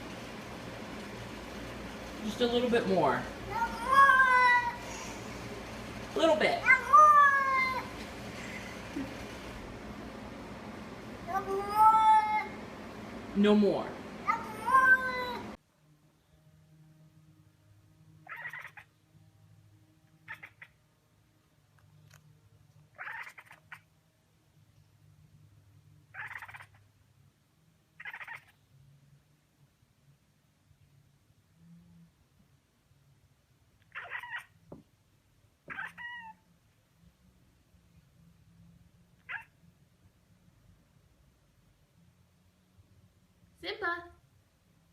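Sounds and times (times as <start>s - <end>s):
cat calling out: 3.5s - 5.1s, 6.6s - 8.0s, 14.3s - 15.6s, 18.2s - 18.9s, 20.2s - 20.8s, 22.9s - 23.9s, 26.1s - 26.8s, 28.0s - 28.6s, 33.9s - 34.6s, 35.7s - 36.5s, 39.2s - 39.6s.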